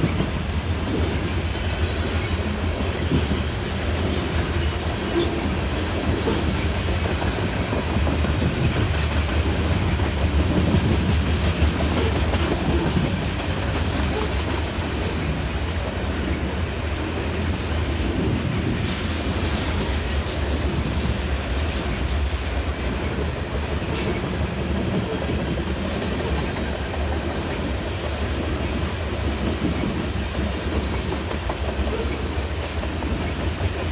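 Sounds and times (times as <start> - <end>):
train wheels rumbling on rail: 0.0 - 33.9
faint high wheel squeal: 14.1 - 18.6.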